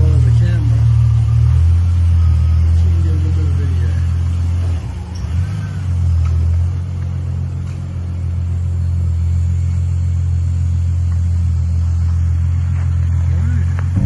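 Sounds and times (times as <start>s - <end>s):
car engine low rumble: 0.0s - 14.0s.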